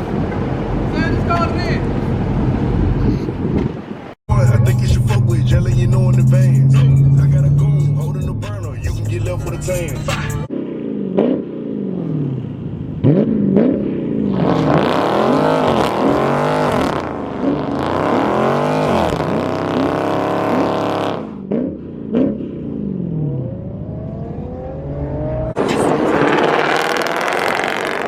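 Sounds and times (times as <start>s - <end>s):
car engine revving hard: 4.3s - 10.5s, 13.0s - 23.6s, 24.3s - 28.0s.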